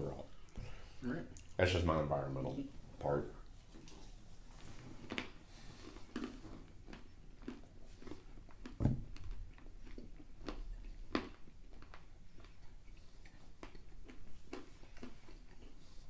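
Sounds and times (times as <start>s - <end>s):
people chewing crunchy snack: 3.7s - 16.0s
dull thump: 8.8s - 9.2s.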